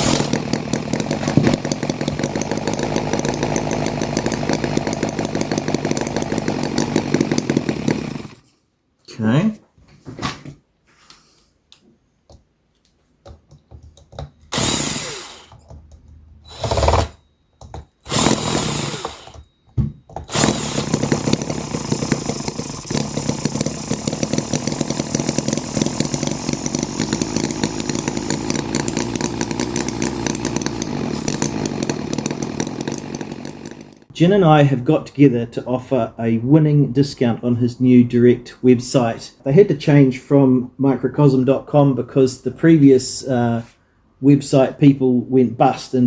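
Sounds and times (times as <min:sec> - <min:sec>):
model petrol engine running: 0:00.0 - 0:08.4, 0:14.5 - 0:15.5, 0:16.5 - 0:17.2, 0:18.1 - 0:19.4, 0:20.3 - 0:34.1.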